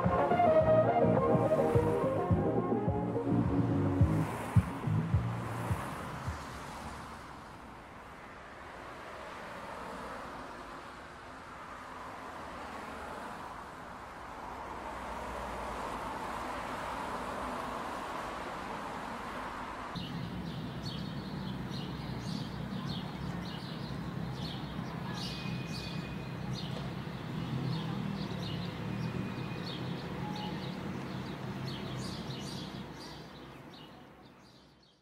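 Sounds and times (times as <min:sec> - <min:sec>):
small birds chirping: 0:20.0 - 0:35.0.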